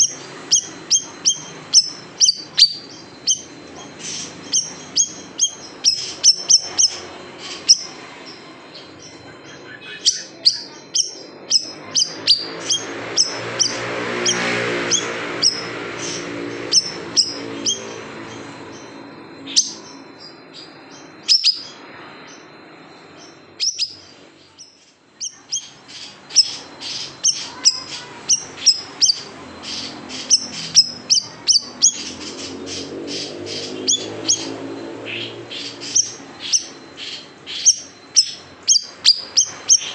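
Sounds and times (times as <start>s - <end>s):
songbird chirping calls: 0.0s - 39.9s.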